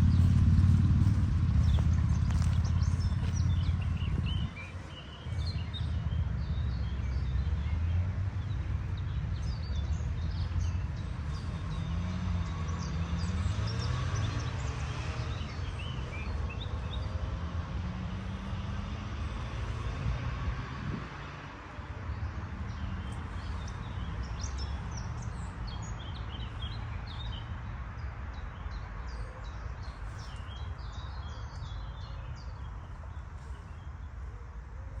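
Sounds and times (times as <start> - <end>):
steady low rumble: 0.0 - 6.7
birds chirping: 0.0 - 7.5.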